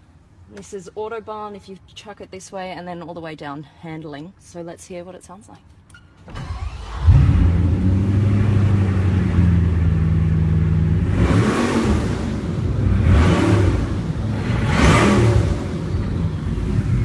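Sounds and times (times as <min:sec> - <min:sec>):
car engine idling and revving: 0:06.5 - 0:17.0.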